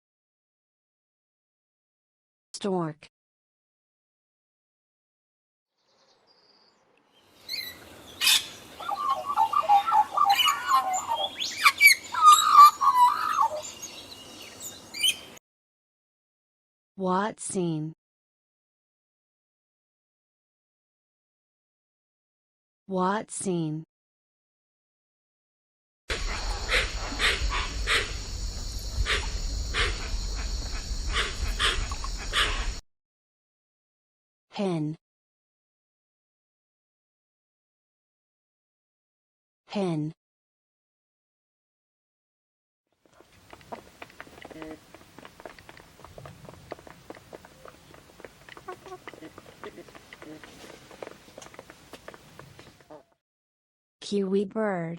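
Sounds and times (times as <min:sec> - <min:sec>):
bird chirping and warbling: 0:05.8 - 0:15.4
animal short sharp calls: 0:31.1 - 0:32.8.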